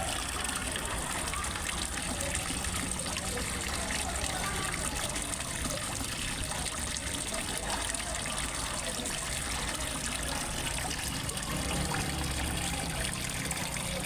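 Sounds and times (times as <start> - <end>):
water trickling into a pond: 0.0 - 14.0.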